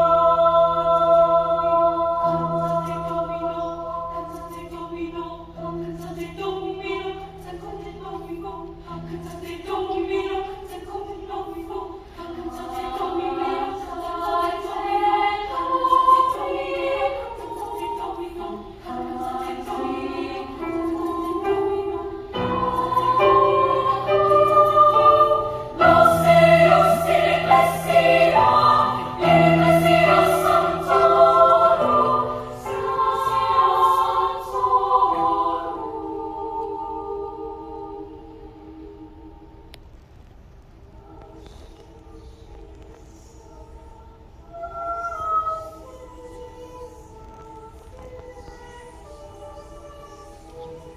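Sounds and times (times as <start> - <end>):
children's choir singing: 0.0 - 39.6.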